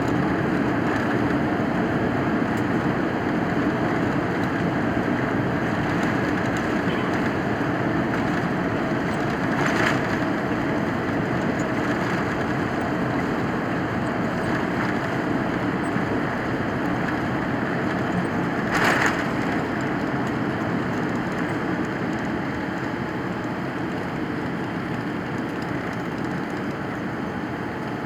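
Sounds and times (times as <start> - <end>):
aircraft cabin engine and airflow noise: 0.0 - 28.0.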